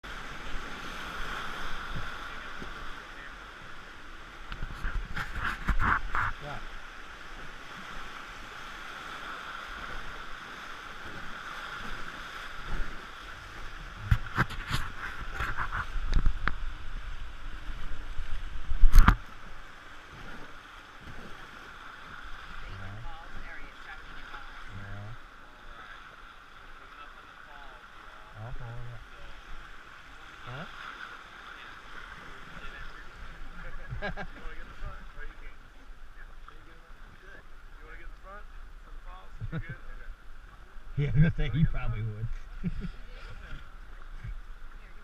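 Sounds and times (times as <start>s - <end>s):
rushing whitewater: 0.0s - 45.0s.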